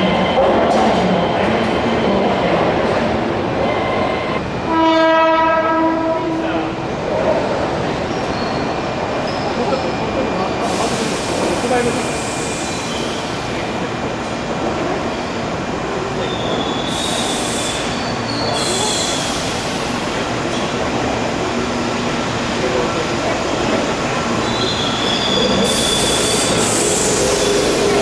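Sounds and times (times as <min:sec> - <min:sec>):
train wheels squealing: 0:08.0 - 0:13.6, 0:16.1 - 0:19.9, 0:24.3 - 0:28.0
electric train rumble: 0:16.9 - 0:28.0
hiss bursts: 0:25.6 - 0:28.0.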